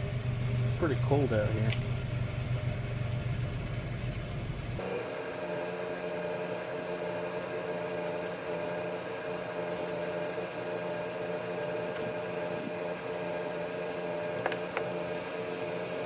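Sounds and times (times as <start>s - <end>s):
machine hum with hiss: 4.7s - 16.0s.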